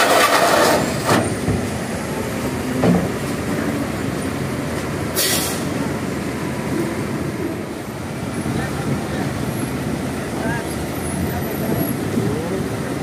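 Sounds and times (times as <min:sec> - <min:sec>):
truck engine rumble: 0:00.0 - 0:13.0
brake air hiss: 0:05.2 - 0:05.8.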